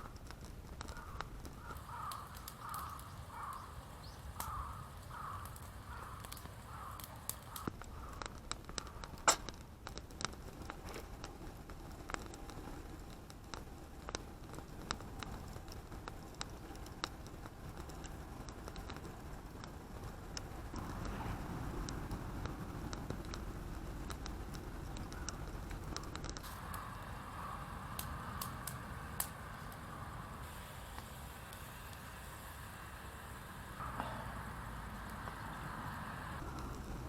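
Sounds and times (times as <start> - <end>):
sharp crackles and clicks: 0.0 - 37.0
bird calling: 0.9 - 8.2, 26.7 - 28.6
loud crack: 4.4 - 9.6
low steady rumble: 8.8 - 37.0.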